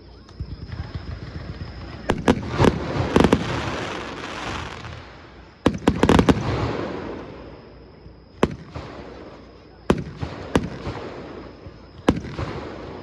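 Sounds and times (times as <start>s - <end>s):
fireworks crackling: 0.3s - 7.6s
fireworks sharp bangs: 0.4s - 7.7s, 8.3s - 13.0s.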